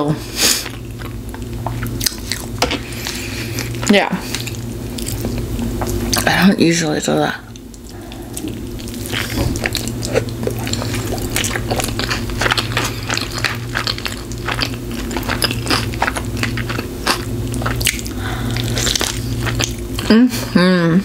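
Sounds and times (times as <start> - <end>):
person chewing food close-up: 0.5 - 6.3, 7.5 - 20.1.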